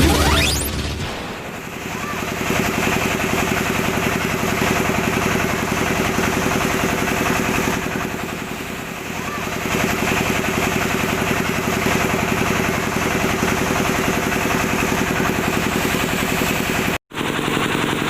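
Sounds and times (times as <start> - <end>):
music: 0.0 - 1.4
engine idling: 1.6 - 18.0.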